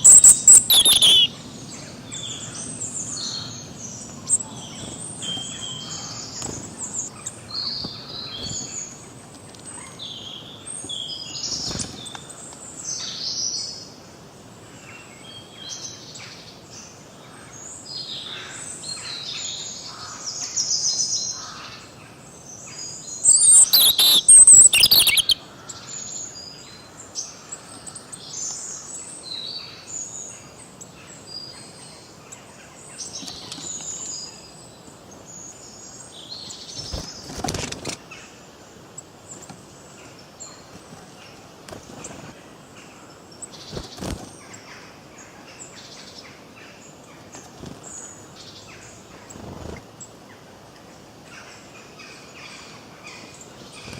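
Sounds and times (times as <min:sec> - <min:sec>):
songbirds chirping and singing: 0:00.0 - 0:13.9, 0:14.8 - 0:53.9.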